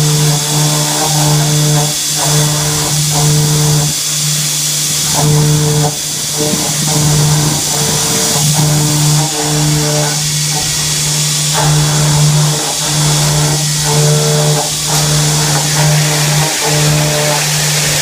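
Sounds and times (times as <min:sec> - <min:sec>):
mill cutting metal: 0:00.0 - 0:18.0.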